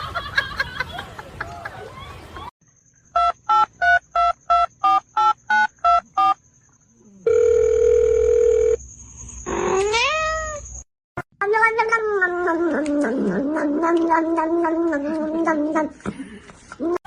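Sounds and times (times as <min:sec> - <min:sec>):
telephone tone: 0:07.2 - 0:08.8
cat meowing: 0:09.8 - 0:10.6.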